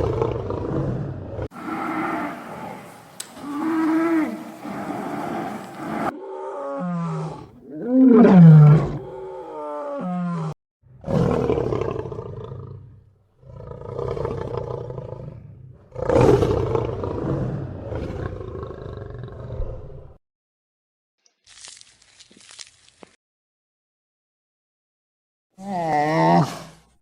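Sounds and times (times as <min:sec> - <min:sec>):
big cat roaring: 0:00.0 - 0:20.1.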